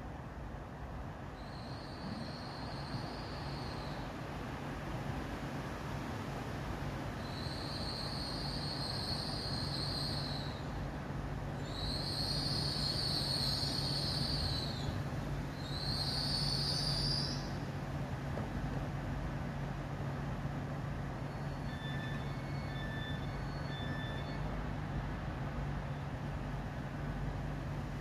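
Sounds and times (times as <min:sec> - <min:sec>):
train running hum: 0:00.0 - 0:28.0
high-pitched wheel and brake squeals: 0:01.3 - 0:04.1, 0:07.2 - 0:10.8, 0:11.6 - 0:17.7, 0:21.1 - 0:25.0.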